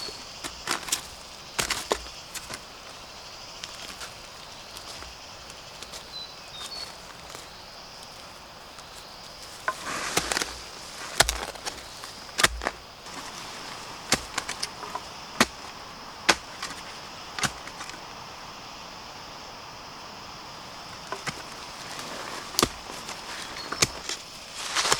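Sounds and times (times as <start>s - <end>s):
high insect drone: 0.0s - 24.9s
sharp chopping strikes: 12.3s - 12.8s.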